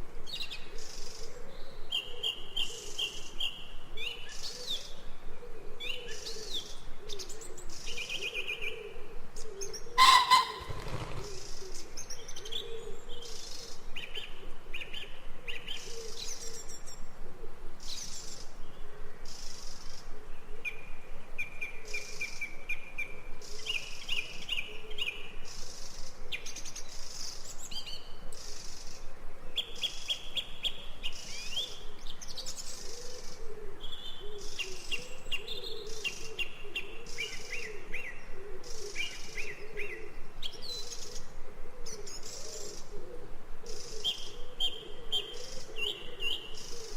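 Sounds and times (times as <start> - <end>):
birds chirping and trilling: 9.8 - 11.6
low wavering bird call: 10.0 - 11.2.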